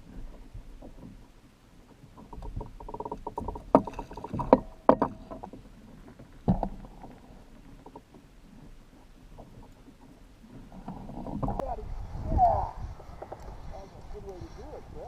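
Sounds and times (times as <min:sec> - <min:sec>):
clicks of gear on a kayak: 0:00.0 - 0:11.7, 0:13.2 - 0:14.4.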